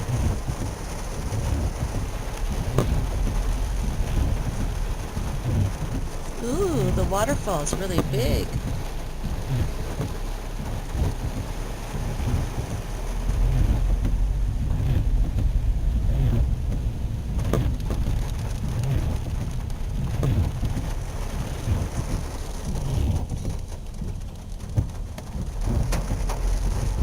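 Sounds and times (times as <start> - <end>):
low rumble: 0.0 - 6.4, 8.5 - 20.1
heavy rain on a car: 0.0 - 27.0.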